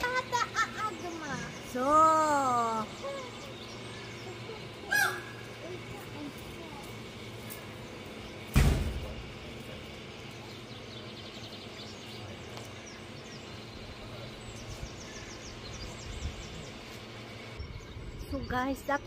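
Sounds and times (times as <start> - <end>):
outdoor background hum: 0.0 - 19.0
loud sudden thump: 8.5 - 9.2.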